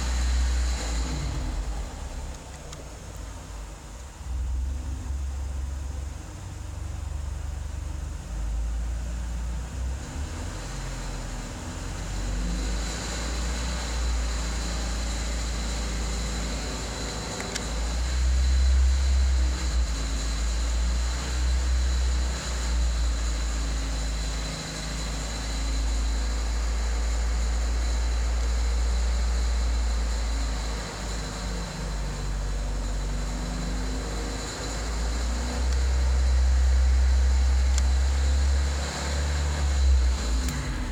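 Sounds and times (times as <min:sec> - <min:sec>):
car engine droning: 0:00.0 - 0:40.9.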